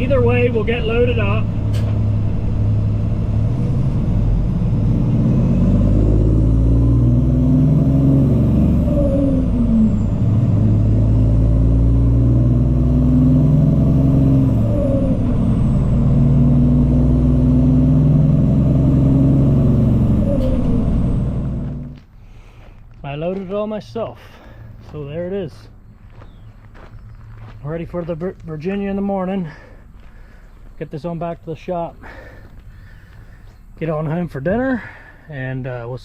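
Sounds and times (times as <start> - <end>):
truck diesel engine revving: 0.0 - 22.0.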